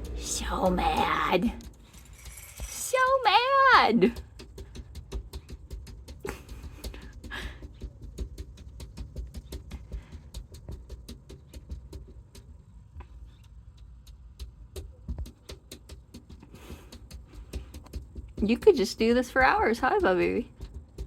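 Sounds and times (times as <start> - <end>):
low rumble: 0.0 - 3.3
cat paws scratching: 0.4 - 21.0.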